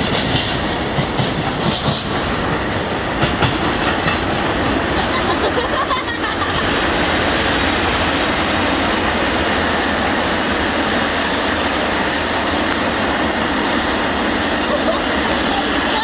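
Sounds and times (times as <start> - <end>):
freight train wheels clacking: 0.0 - 16.0
train rolling rumble: 0.0 - 16.0.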